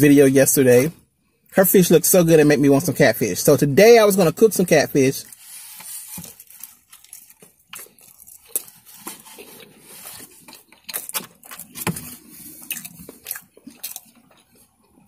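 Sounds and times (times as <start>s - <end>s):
chewing crunchy fried chicken: 6.1s - 15.0s.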